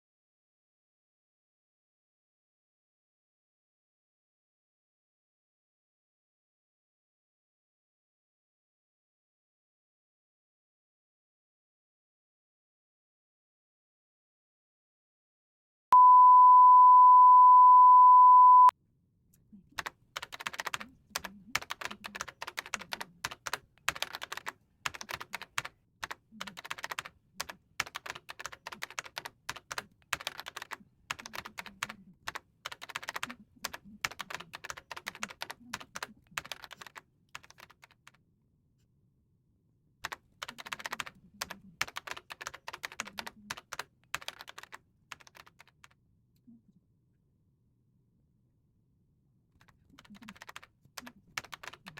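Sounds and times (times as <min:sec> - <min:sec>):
loud steady beep: 0:16.0 - 0:18.7
typing on computer keyboard: 0:19.8 - 0:38.2, 0:40.0 - 0:46.0, 0:49.6 - 0:51.9.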